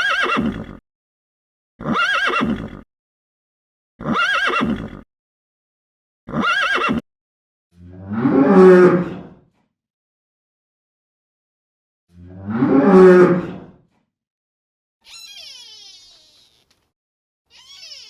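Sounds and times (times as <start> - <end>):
horse whinnying: 0.0 - 0.8, 1.8 - 2.8, 4.0 - 5.0, 6.3 - 7.0.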